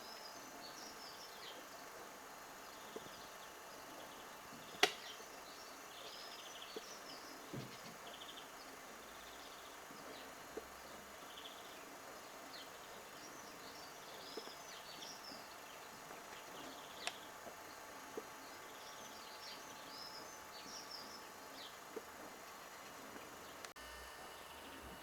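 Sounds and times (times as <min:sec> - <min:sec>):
small birds chirping: 0:00.0 - 0:25.0
steady hiss: 0:00.0 - 0:25.0
sharp clicks: 0:04.8 - 0:05.1.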